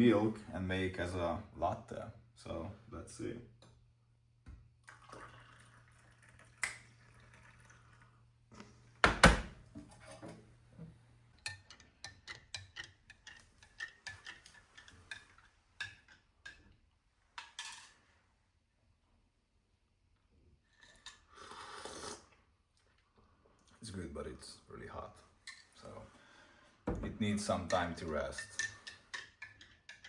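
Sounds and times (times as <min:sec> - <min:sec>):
spoon clinking against a mug: 0:27.7 - 0:30.0.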